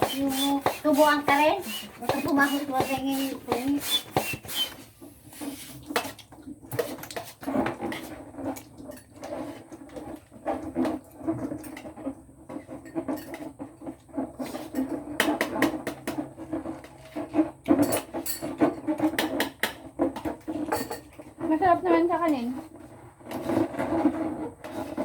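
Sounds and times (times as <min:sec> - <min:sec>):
rubber balloons squeaking: 0:00.0 - 0:05.8.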